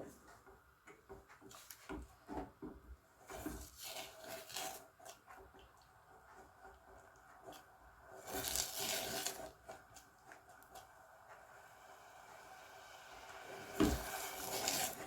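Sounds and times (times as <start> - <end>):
utensil scraping a saucepan: 3.2 - 5.2, 8.2 - 9.8, 13.6 - 15.0.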